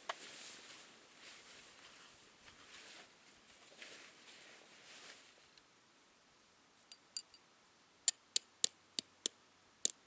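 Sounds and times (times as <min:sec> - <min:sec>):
faint soft rustling: 0:00.0 - 0:05.7.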